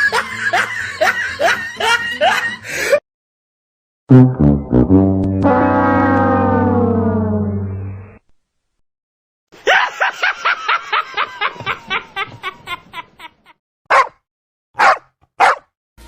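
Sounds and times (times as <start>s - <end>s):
person laughing hard: 9.6s - 13.6s.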